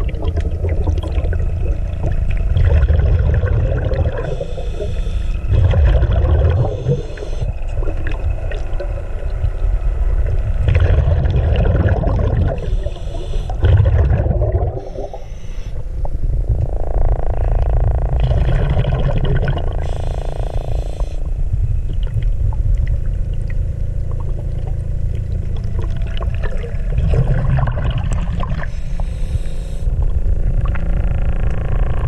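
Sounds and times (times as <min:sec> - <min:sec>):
water rushing past hull: 0:00.0 - 0:16.6, 0:21.3 - 0:29.0
boat engine running: 0:00.0 - 0:32.0
wind rumble on microphone: 0:05.3 - 0:12.7, 0:15.7 - 0:32.0.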